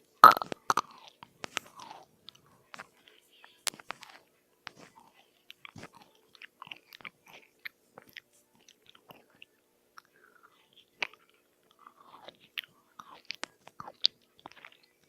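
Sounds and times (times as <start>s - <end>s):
mouth clicks: 0.2s - 1.0s
chewing crisp food: 0.2s - 15.0s.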